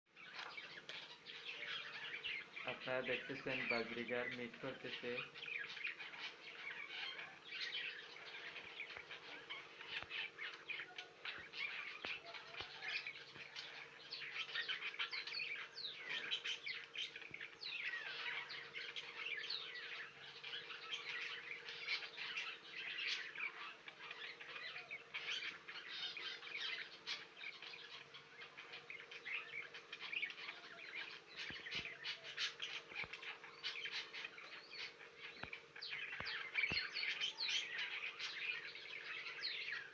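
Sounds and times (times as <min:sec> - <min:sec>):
budgerigars chattering and warbling: 0:00.1 - 0:39.9
faint steady hum: 0:00.1 - 0:39.9.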